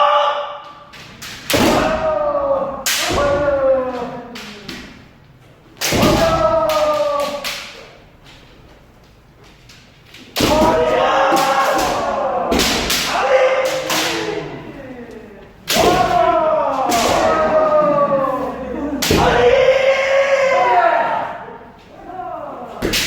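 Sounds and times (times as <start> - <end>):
long drawn-out shout: 0.0 - 0.7, 1.7 - 4.5, 6.0 - 7.6, 10.4 - 22.8
bamboo swords striking armour: 1.2 - 2.1, 5.8 - 6.8, 10.3 - 14.2, 15.7 - 16.3, 16.9 - 17.5.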